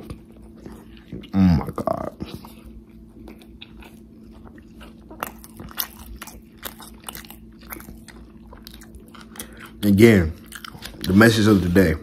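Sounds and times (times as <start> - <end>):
person chewing with lip-smacking: 0.0 - 11.8.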